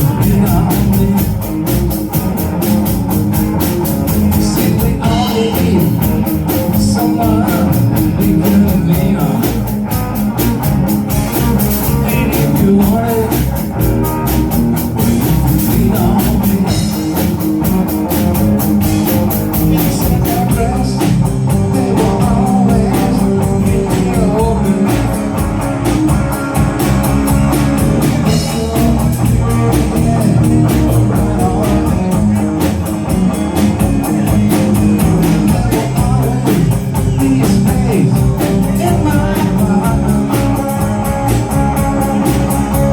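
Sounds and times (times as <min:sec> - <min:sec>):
rock band playing: 0:00.0 - 0:42.9.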